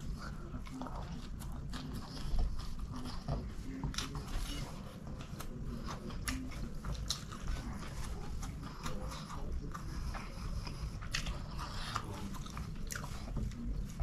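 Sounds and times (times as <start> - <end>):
close chewing: 0.0 - 14.0.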